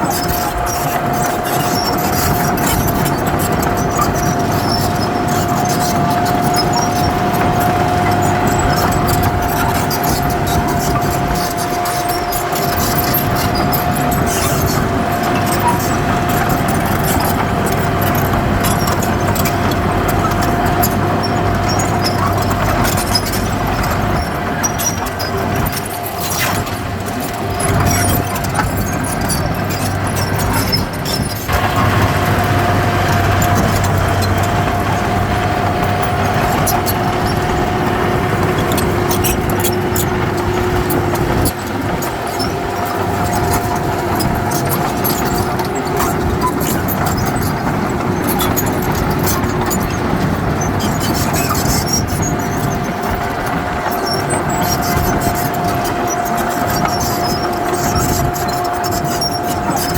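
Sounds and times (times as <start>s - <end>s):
steady whine: 0.0s - 52.2s
heavy diesel machinery running: 0.0s - 59.9s.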